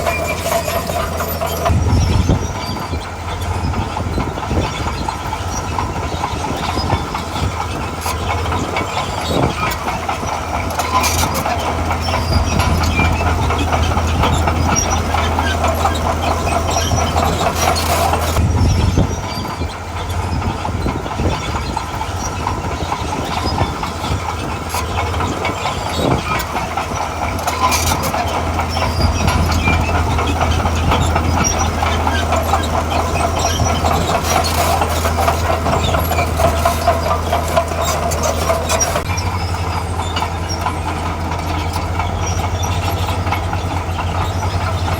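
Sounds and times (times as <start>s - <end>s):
crawler tracks clattering: 0.0s - 44.9s
diesel engine under load: 0.0s - 44.9s
metal clanks: 0.0s - 44.9s.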